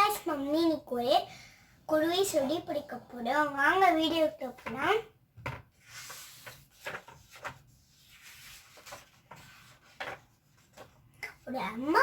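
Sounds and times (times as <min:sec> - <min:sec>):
book pages turning: 0:05.8 - 0:11.1.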